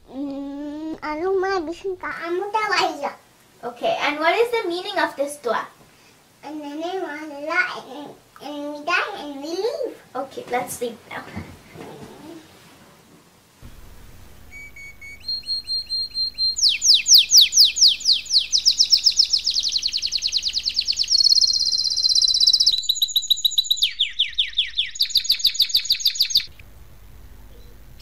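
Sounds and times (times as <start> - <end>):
faint low hum: 13.1 - 22.9, 26.3 - 28.0
songbird singing trills: 14.5 - 26.5.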